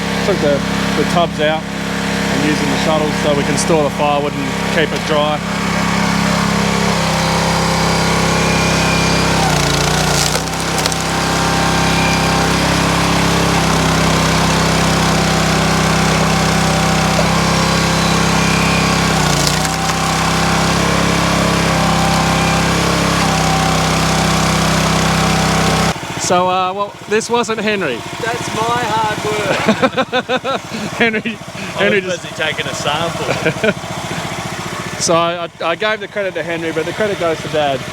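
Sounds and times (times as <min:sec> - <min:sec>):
log splitter engine: 0:00.0 - 0:37.9
wood splitting crack: 0:06.4 - 0:25.9.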